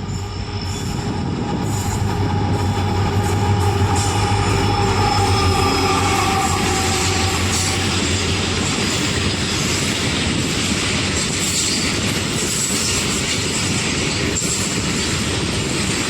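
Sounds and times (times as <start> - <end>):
train wheels clattering on rails: 0.0 - 16.0.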